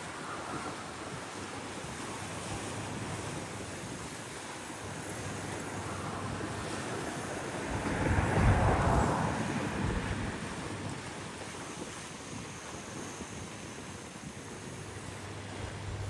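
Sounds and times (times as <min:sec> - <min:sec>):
wind on microphone: 0:02.8 - 0:13.8, 0:15.3 - 0:16.0.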